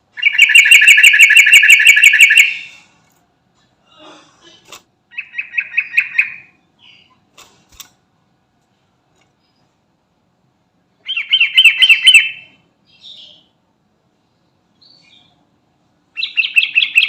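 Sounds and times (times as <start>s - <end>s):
bird calling rapid notes: 0.2s - 2.8s, 11.1s - 12.6s, 16.2s - 17.0s.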